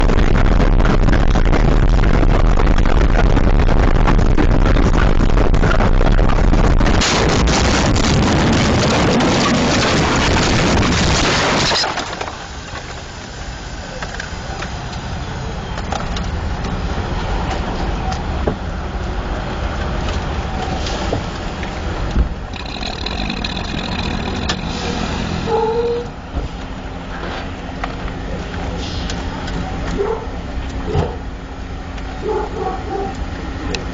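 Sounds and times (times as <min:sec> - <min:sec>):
road and wind noise: 0:00.0 - 0:33.9
low engine rumble: 0:12.6 - 0:33.9.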